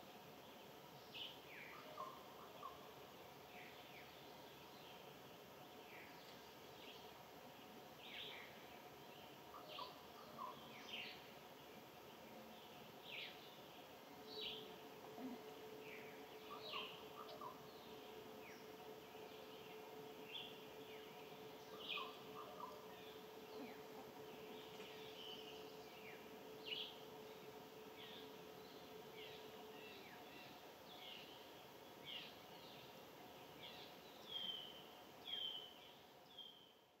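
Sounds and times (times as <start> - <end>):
faint steady hum: 0.0 - 37.0
bird chirps: 15.2 - 27.0.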